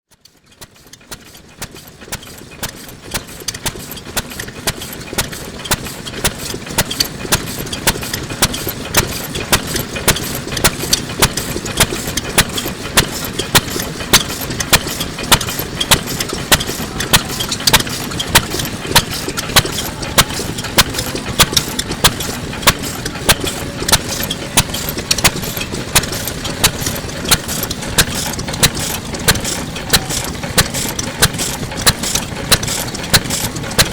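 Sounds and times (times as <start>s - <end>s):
stationary engine running: 0.2s - 33.9s.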